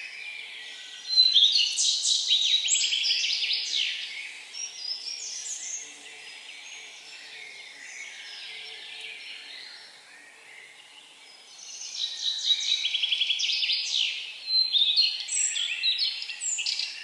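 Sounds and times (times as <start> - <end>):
songbird singing trilled notes: 0.0 - 10.0
background chorus of birds: 0.0 - 17.0.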